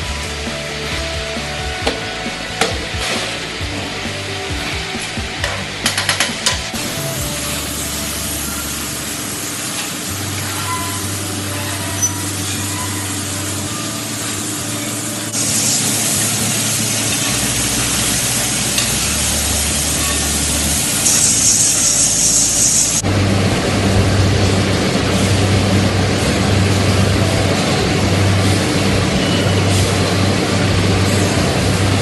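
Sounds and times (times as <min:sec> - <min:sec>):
low machinery hum: 0:00.0 - 0:32.0
machinery hiss: 0:06.4 - 0:26.8.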